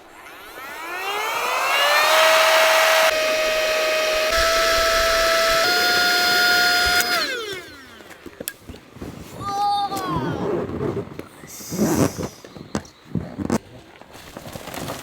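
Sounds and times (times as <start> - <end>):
electric air pump whining: 0.0 - 9.4.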